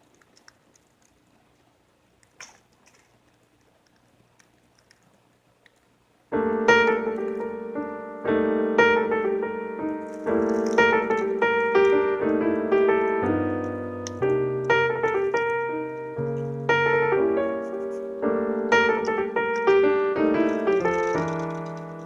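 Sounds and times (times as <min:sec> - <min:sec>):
piano chords: 0:06.3 - 0:22.0.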